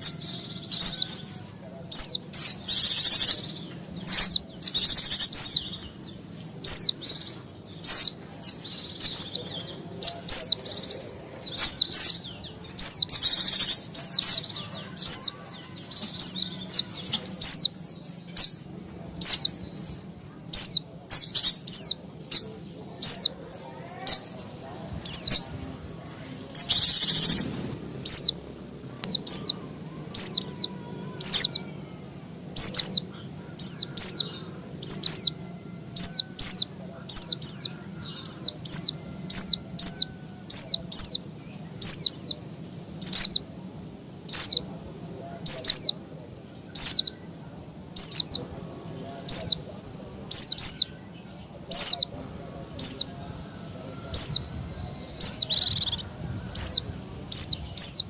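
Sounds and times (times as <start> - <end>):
faint low hum: 0.0 - 58.0
harsh raspy bird call: 6.6 - 17.8, 29.0 - 42.4.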